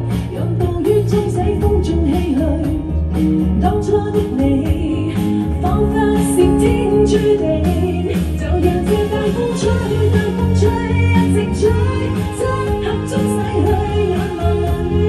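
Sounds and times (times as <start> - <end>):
live band playing pop ballad: 0.0 - 15.0.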